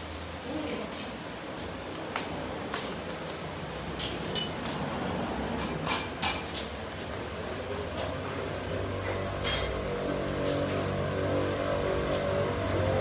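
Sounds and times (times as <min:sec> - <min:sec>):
metal tools clinking and knocking: 0:04.2 - 0:04.7, 0:08.7 - 0:09.8
ringing metallic clang: 0:08.7 - 0:09.9.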